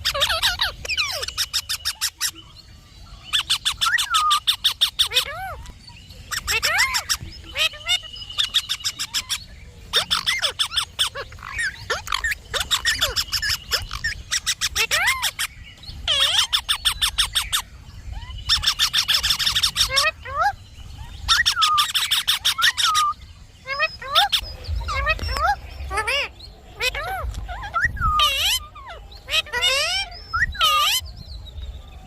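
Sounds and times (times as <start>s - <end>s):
parakeet chattering: 0.0s - 2.3s, 3.3s - 20.6s, 21.2s - 31.0s
parakeet whistled notes: 21.3s - 31.0s.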